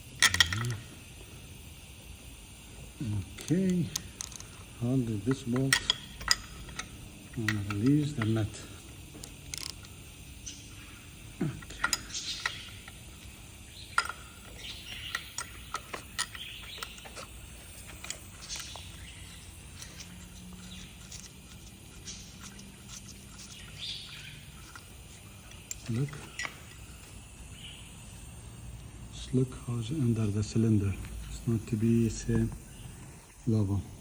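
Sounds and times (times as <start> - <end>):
wrench clicking on metal: 0.2 - 0.8, 3.4 - 10.0, 11.5 - 13.0, 13.9 - 17.3.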